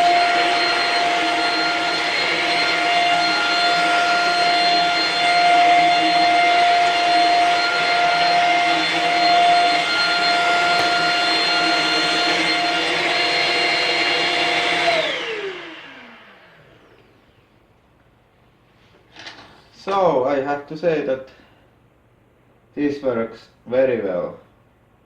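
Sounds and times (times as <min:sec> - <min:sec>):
stick vacuum motor whine: 0:00.0 - 0:17.4.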